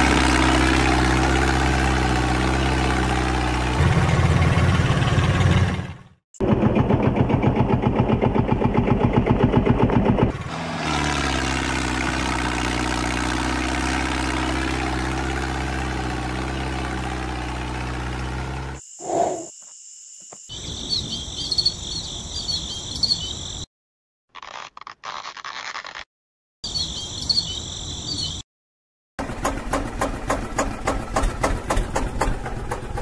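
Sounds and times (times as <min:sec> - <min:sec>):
birds chirping: 0:20.5 - 0:23.7, 0:26.6 - 0:28.4.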